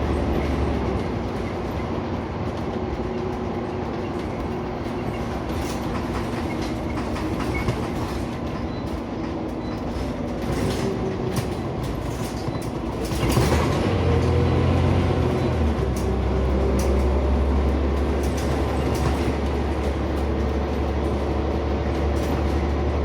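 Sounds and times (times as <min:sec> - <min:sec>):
bus engine droning: 0:00.0 - 0:23.0
road noise: 0:00.0 - 0:23.0.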